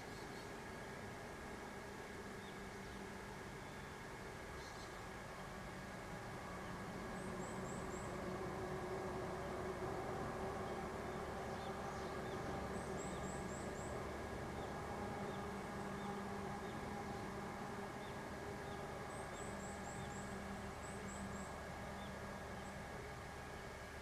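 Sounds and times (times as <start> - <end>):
steady outdoor hum: 0.0 - 24.0.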